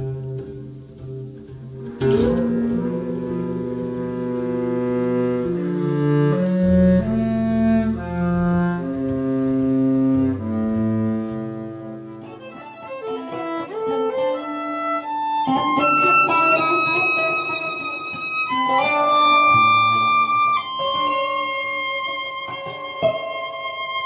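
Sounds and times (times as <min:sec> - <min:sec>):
acoustic guitar: 0:00.0 - 0:24.0
violin: 0:00.0 - 0:24.0.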